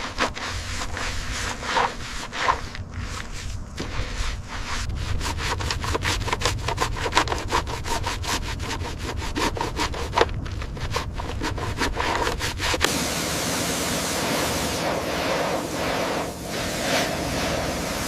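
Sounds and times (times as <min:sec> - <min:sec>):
hand tool rasping strokes: 0:00.0 - 0:12.9.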